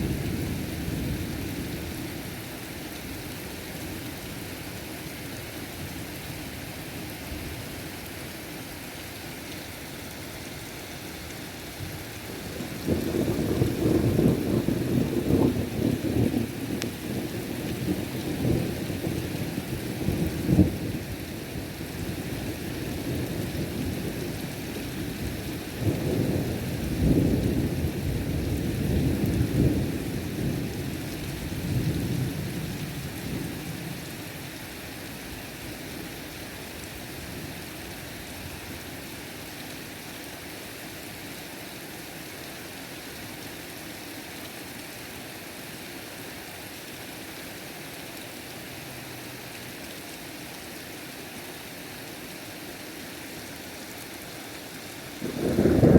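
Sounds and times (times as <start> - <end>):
heavy rain hissing: 5.3 - 40.8, 41.6 - 55.9
thunder rumbling: 12.3 - 19.2, 55.2 - 55.9
sharp thunder clap: 55.3 - 55.9.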